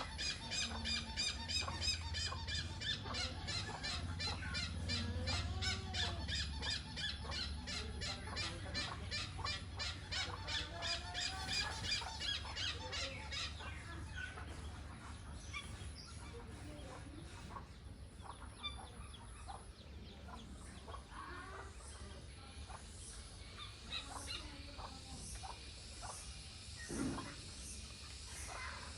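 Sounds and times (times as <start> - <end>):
hornbill honking calls: 0.0 - 14.4.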